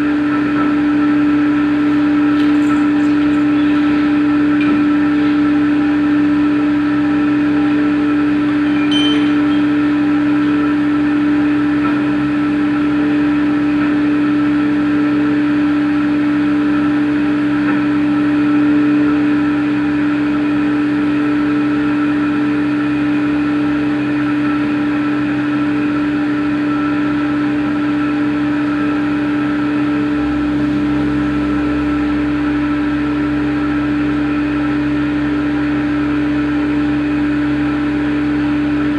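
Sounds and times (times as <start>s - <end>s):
deep low hum: 0.0s - 13.9s, 27.7s - 38.9s
cnc machine humming: 0.0s - 38.9s.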